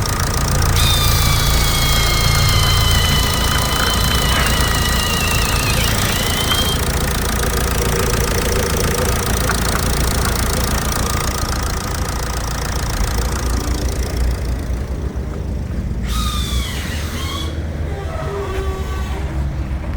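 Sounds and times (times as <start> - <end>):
diesel engine idling: 0.0 - 19.9
brief high squeal: 0.8 - 6.8, 16.1 - 19.5.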